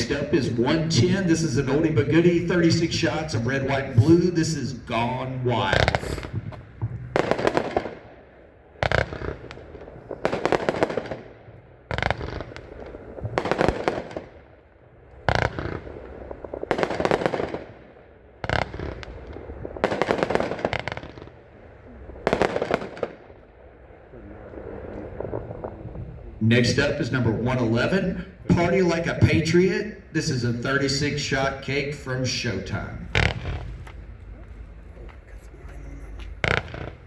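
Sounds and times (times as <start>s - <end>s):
firework bangs: 0.0s - 34.2s, 36.1s - 37.0s
rapid firework pops: 5.7s - 8.1s, 8.8s - 11.3s, 11.9s - 14.5s, 15.2s - 21.4s, 22.2s - 23.4s, 33.1s - 34.0s, 36.2s - 37.0s.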